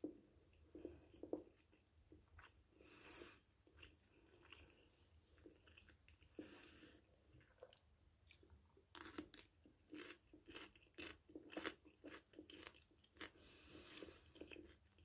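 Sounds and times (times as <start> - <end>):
bell pepper crunching while chewed: 8.3 - 13.4.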